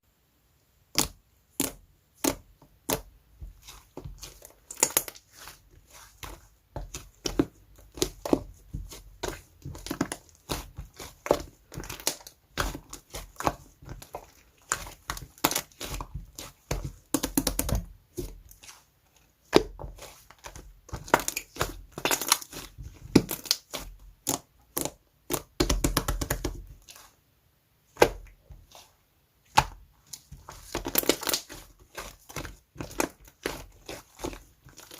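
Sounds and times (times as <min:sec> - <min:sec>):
slime squishing with sticky pops: 0:00.9 - 0:27.2, 0:27.8 - 0:34.9.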